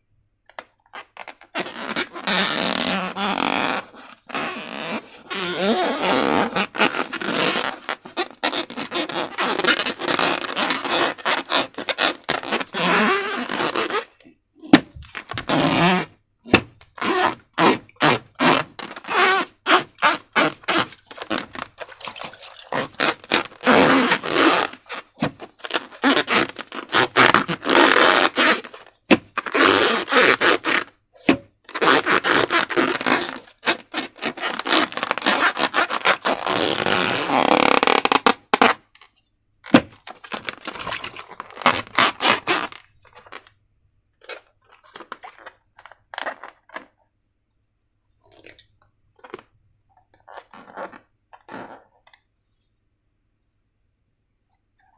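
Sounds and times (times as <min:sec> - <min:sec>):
slime squelching by hand: 0:20.0 - 0:26.8, 0:39.7 - 0:43.5.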